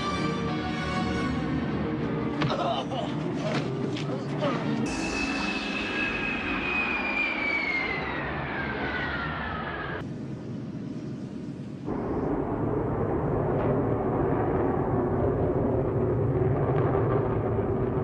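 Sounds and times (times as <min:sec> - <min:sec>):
jet engine rush: 0:04.6 - 0:18.0
jet engine whine: 0:04.6 - 0:18.0.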